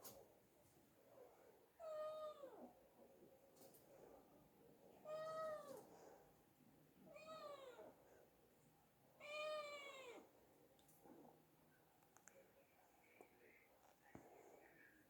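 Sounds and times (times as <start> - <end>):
cat meowing: 9.2 - 10.2.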